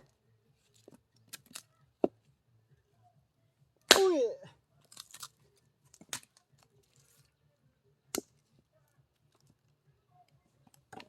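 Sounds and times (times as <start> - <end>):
axe striking log: 3.9 - 4.4.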